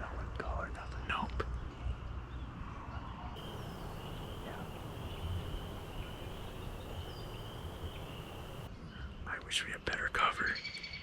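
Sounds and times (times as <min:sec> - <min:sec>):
wind rumble on microphone: 0:01.8 - 0:09.0
faint bird chirps: 0:03.4 - 0:08.7.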